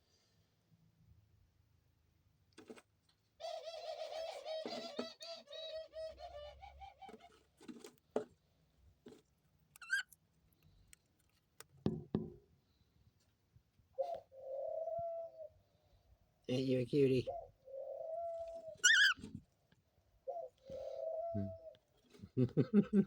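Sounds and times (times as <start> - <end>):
dove cooing: 3.4 - 7.4, 14.0 - 15.6, 17.3 - 19.3, 20.2 - 21.9
light taps and knocks: 11.8 - 12.4.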